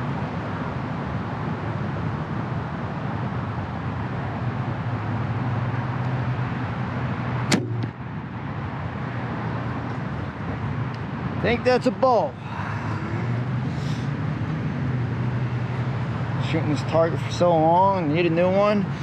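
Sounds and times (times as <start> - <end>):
arrow striking target: 7.5 - 8.0
bow release crack: 7.5 - 8.0.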